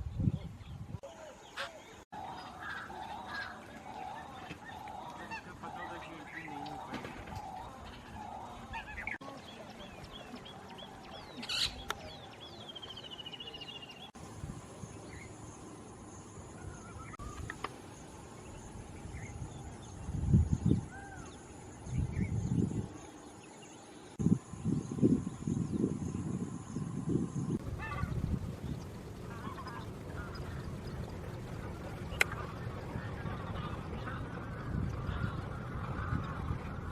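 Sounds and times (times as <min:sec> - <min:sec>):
birds chirping and trilling: 0:00.0 - 0:36.9
steady high hum: 0:02.2 - 0:36.9
low rumbling bursts: 0:24.2 - 0:36.9.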